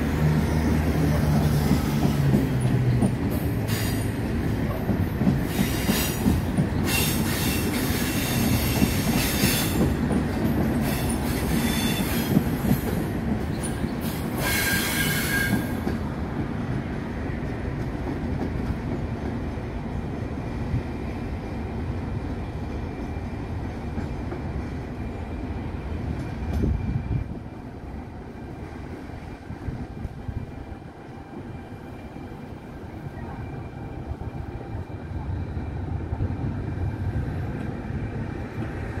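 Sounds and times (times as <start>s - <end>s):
rumble of wheels on rail: 0.0s - 39.0s
train wheels squealing: 0.4s - 10.0s, 10.7s - 16.0s.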